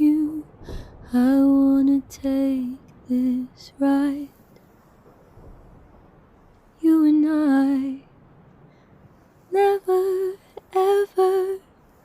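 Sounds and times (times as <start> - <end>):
woman singing softly: 0.0 - 4.5, 6.7 - 8.1, 9.5 - 11.8
faint background hiss: 0.0 - 12.0.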